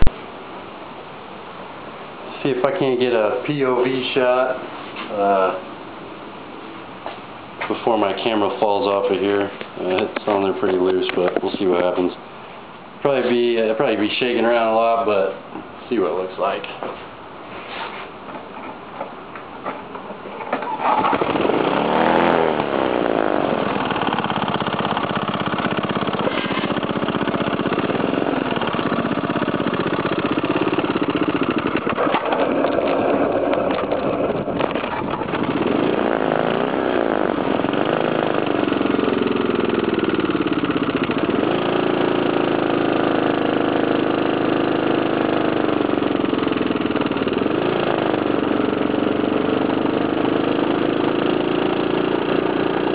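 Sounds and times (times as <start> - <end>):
motorized bike engine revving: 19.6 - 52.9.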